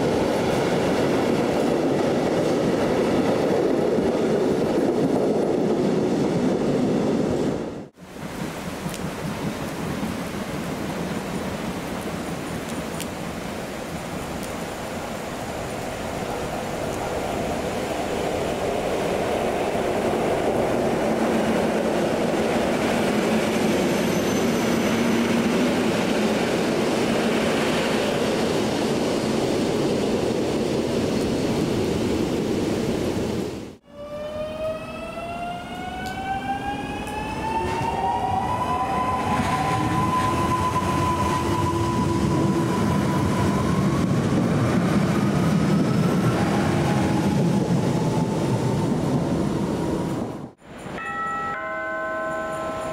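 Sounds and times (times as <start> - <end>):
train rumbling: 0.0 - 52.9
train drive whine rising: 33.8 - 48.3.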